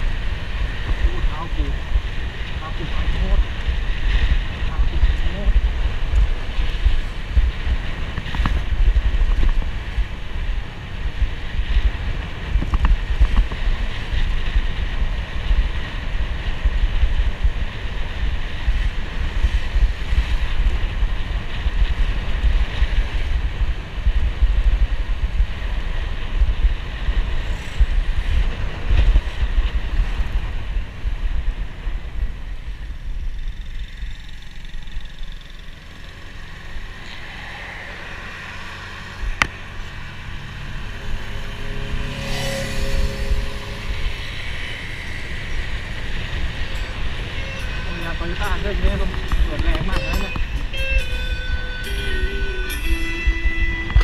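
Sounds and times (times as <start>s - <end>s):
road noise: 0.0s - 54.0s
wind buffeting microphone: 0.0s - 54.0s
motorcycle engine: 32.7s - 53.8s.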